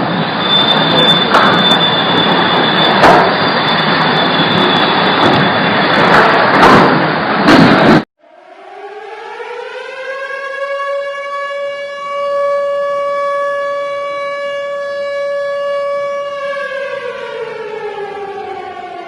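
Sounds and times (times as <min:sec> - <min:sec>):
siren winding up: 0:00.0 - 0:06.0
thin whistle: 0:00.3 - 0:05.7
sharp clicks and knocks: 0:02.9 - 0:03.4.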